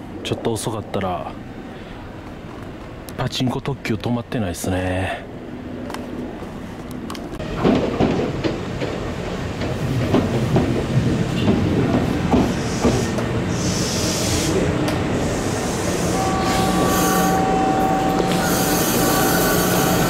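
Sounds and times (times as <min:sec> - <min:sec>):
train wheels knocking over rail joints: 0:07.5 - 0:13.3
train hiss: 0:12.3 - 0:20.0
high brake squeal: 0:15.4 - 0:20.0.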